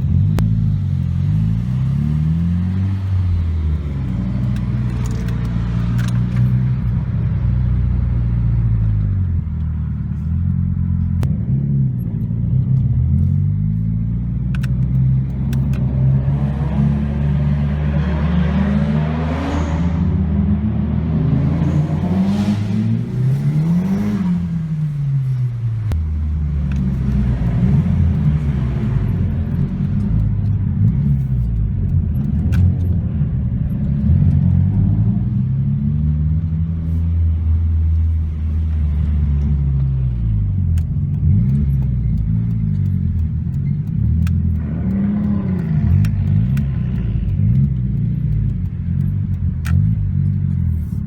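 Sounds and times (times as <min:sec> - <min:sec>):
car engine accelerating: 0:00.0 - 0:51.0.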